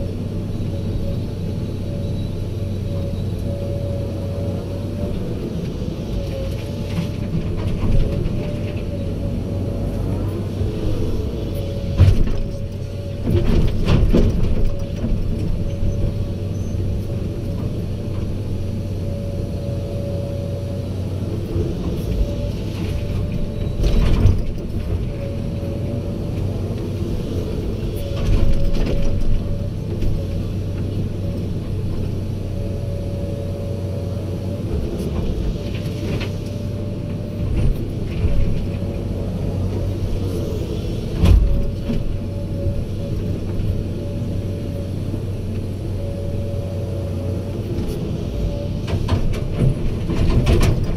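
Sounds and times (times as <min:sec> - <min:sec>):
diesel machinery hum: 0:00.0 - 0:50.9
machinery whine: 0:00.0 - 0:50.9
clunks and knocks: 0:06.7 - 0:09.0, 0:11.8 - 0:16.2, 0:21.8 - 0:25.3, 0:41.1 - 0:42.2, 0:48.8 - 0:50.9.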